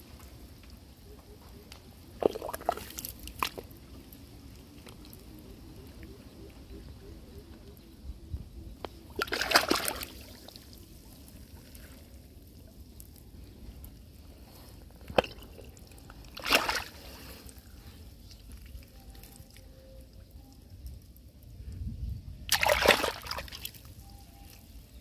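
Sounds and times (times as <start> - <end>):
wet sloshes of mud and water: 2.1 - 3.8, 9.1 - 12.8, 15.0 - 19.6, 22.5 - 24.0.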